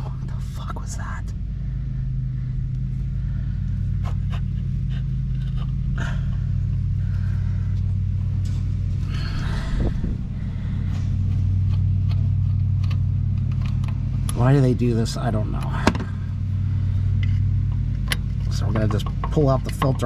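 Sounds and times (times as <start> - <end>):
low mechanical hum: 0.0 - 20.0
tools clicking and scraping: 4.0 - 5.8.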